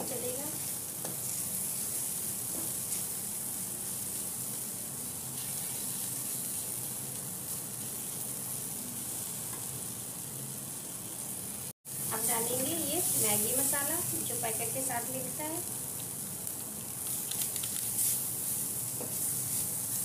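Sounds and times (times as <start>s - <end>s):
vegetables sizzling in oil: 0.0s - 20.0s
wooden spatula stirring: 17.8s - 20.0s.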